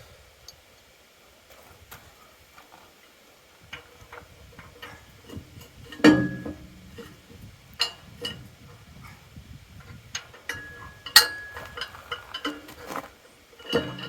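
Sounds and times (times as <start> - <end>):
steel parts clicking and knocking: 3.7 - 7.2, 9.8 - 13.0, 13.6 - 14.0
metallic clank: 4.1 - 9.2, 9.8 - 13.0, 13.6 - 14.0.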